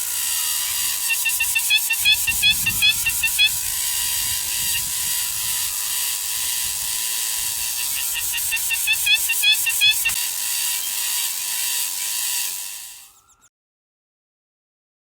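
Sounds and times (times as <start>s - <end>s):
rapid high bird chirps: 0.6s - 3.6s, 7.6s - 13.5s.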